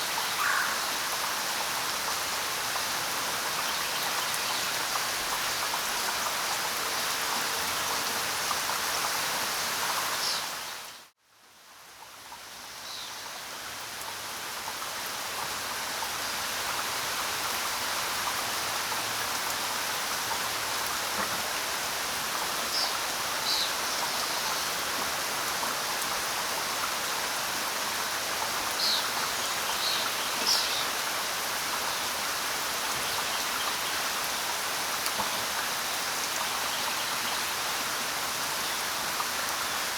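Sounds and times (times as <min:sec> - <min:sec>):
heavy rain: 0:13.2 - 0:39.9.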